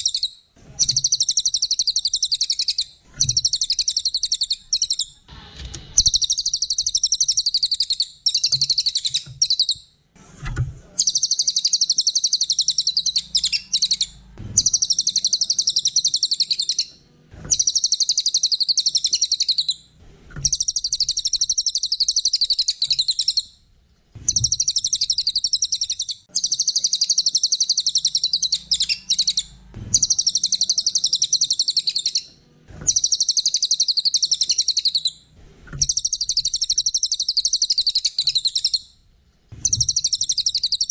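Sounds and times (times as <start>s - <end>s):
songbird fast trilling song: 0.0s - 5.2s, 11.0s - 16.9s, 17.5s - 19.8s, 20.4s - 23.5s, 24.3s - 32.3s, 32.9s - 35.2s, 35.8s - 38.8s, 39.6s - 40.9s.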